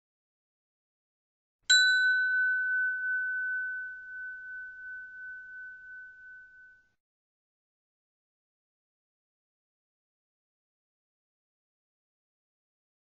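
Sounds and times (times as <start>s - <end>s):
bell-like chime ringing: 1.7s - 7.0s.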